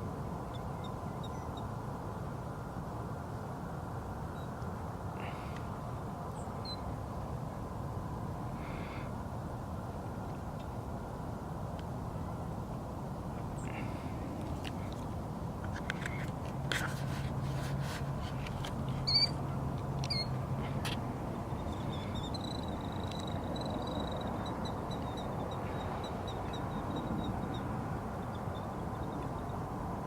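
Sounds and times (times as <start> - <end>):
background hiss: 0.0 - 30.0
birds calling: 18.9 - 27.2.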